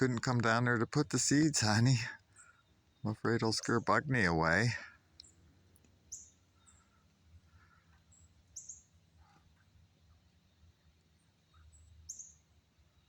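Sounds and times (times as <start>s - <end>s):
faint distant bird calls: 0.0s - 13.0s
high bird chirps: 11.6s - 12.4s.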